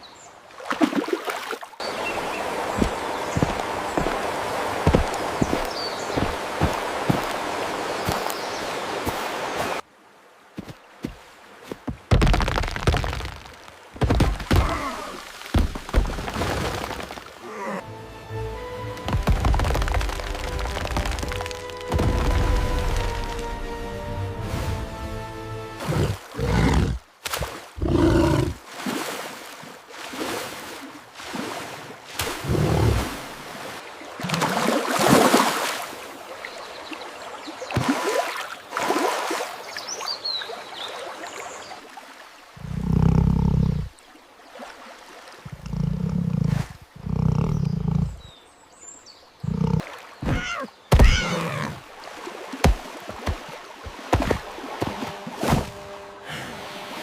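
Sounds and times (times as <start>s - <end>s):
background music: 17.8s - 26.2s
animal growling: 27.8s - 28.6s, 42.6s - 43.9s, 45.5s - 48.2s, 49.4s - 49.8s
animal roars: 27.8s - 28.6s.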